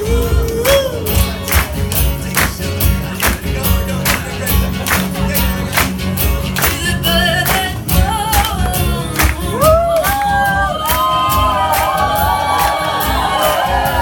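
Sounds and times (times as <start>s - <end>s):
live band playing upbeat song: 0.0s - 14.0s
wordless vocal melody: 0.0s - 14.0s.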